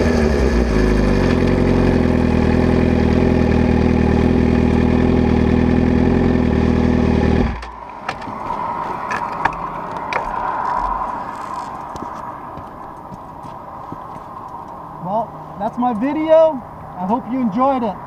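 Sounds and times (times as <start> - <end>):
motorcycle engine idling: 0.0 - 7.7.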